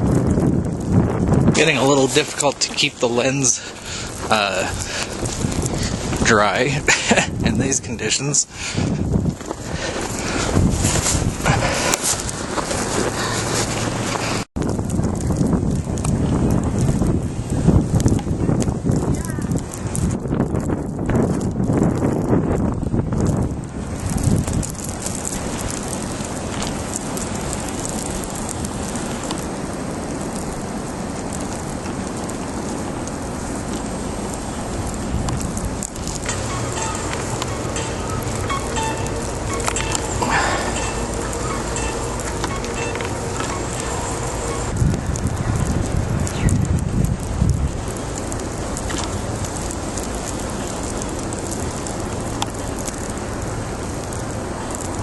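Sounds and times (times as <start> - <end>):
driving wet snow hissing: 0.0 - 55.0
low rumble: 0.0 - 55.0
wind buffeting microphone: 0.0 - 55.0.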